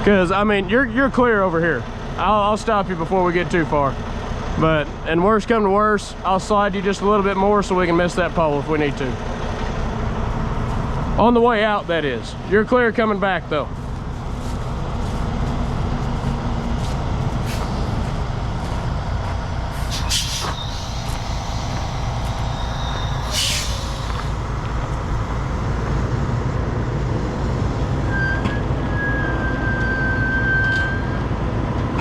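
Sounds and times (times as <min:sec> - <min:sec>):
diesel truck engine running: 0:00.1 - 0:28.0
thin high whine: 0:13.9 - 0:26.3
air release hisses: 0:17.3 - 0:18.1, 0:19.7 - 0:25.2.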